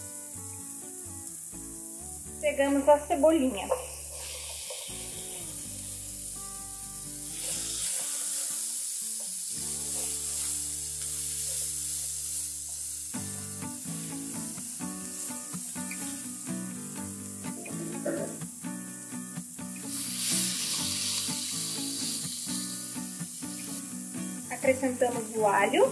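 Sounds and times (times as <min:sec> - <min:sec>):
sausage and onion sizzling in a pan: 0:00.0 - 0:25.9
soft background music: 0:00.0 - 0:25.9
spatula stirring in a pan: 0:07.3 - 0:13.0.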